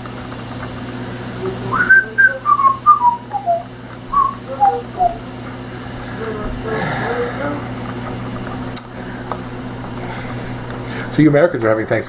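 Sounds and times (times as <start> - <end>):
person whistling a tune: 1.4 - 5.2.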